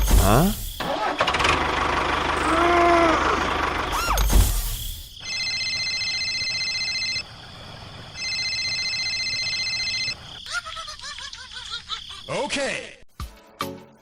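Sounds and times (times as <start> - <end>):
electronic telephone ringing: 5.2 - 7.3, 8.1 - 10.3.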